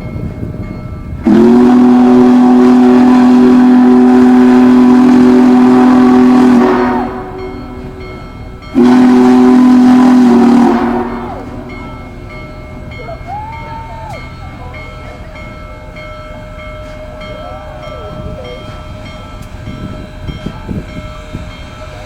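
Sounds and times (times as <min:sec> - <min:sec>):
steam whistle blasts: 0:01.2 - 0:11.9.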